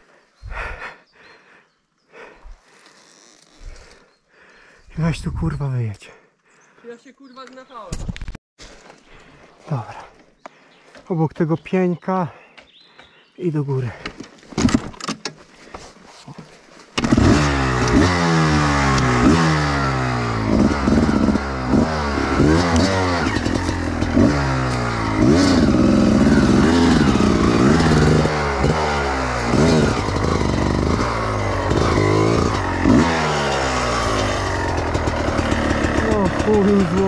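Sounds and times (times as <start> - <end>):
motorcycle engine revving: 17.0 - 37.0.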